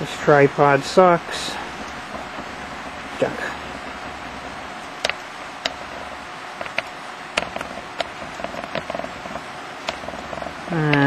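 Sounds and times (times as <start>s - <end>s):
sharp clicks: 5.0s - 5.9s, 6.6s - 11.0s.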